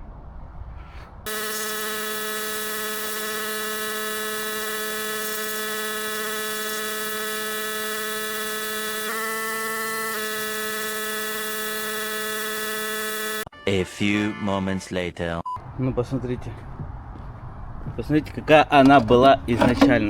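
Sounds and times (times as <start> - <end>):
water spray hiss: 1.3 - 13.4
pressure washer motor whining: 1.3 - 13.5.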